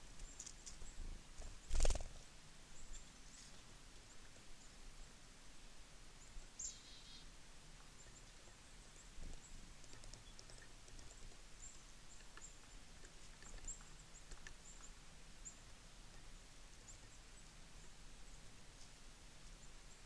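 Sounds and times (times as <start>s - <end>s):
small birds chirping: 0.0s - 5.2s, 6.1s - 20.0s
soft ticks: 9.3s - 15.0s.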